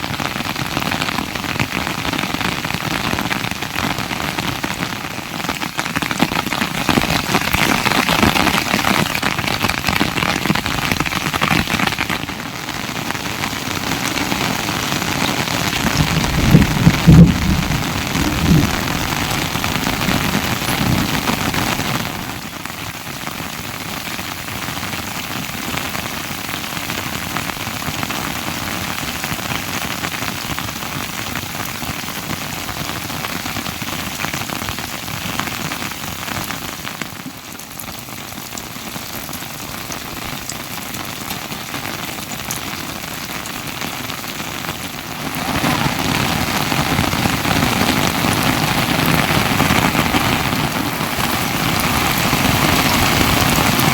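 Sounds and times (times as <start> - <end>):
steady rain falling: 0.0 - 53.9
low thumps: 15.7 - 21.9.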